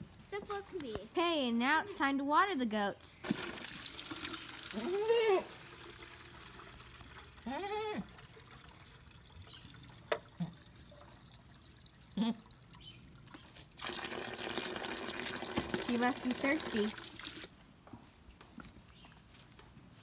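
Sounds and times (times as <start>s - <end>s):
water trickling: 3.2s - 17.5s.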